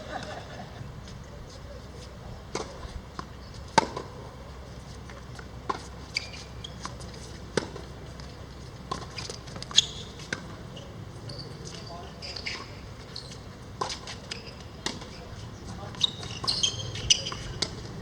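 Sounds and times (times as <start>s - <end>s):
low steady background noise: 0.0s - 18.0s.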